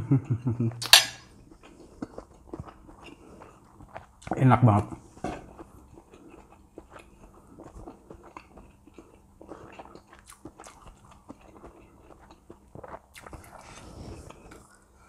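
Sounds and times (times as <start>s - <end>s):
faint chewing mouth clicks: 0.8s - 4.4s, 5.4s - 14.9s.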